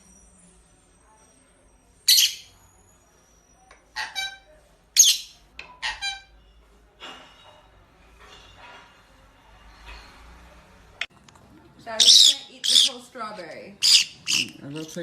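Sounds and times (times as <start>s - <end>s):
parrot squawking and whistling: 2.1s - 2.5s, 3.9s - 6.3s, 12.0s - 13.1s, 13.8s - 14.6s.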